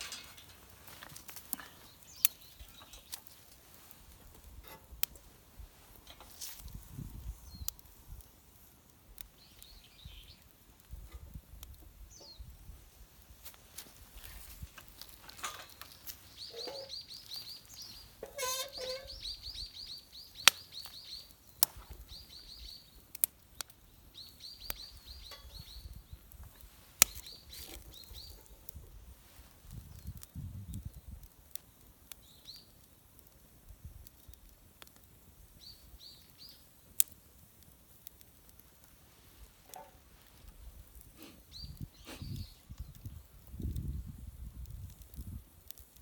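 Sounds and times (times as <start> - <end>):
songbird chirping: 15.8 - 26.0.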